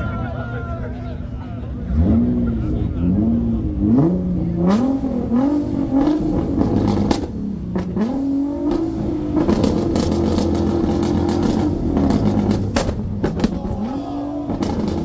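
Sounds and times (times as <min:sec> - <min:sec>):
sports car engine revving: 0:01.2 - 0:15.0
exhaust cracks and pops: 0:06.0 - 0:15.0.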